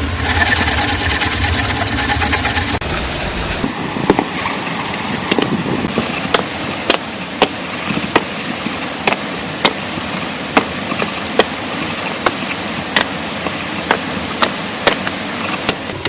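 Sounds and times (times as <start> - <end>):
steady hiss: 2.8 - 16.0
hand tool striking: 5.3 - 16.0.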